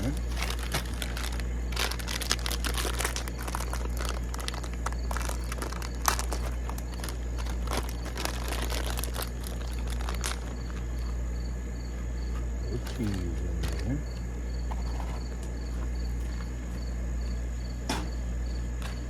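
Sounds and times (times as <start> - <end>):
corn chips poured into bowl: 0.0 - 10.8
steady low hum: 0.0 - 19.0.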